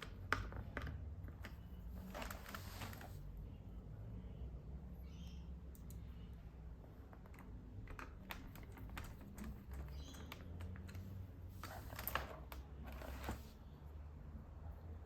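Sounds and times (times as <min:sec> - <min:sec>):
plastic keyboard keys clicking: 0:07.0 - 0:12.7.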